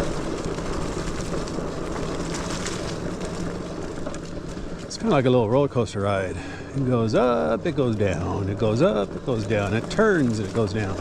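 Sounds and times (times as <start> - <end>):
tyre rumble: 0.0 - 5.6.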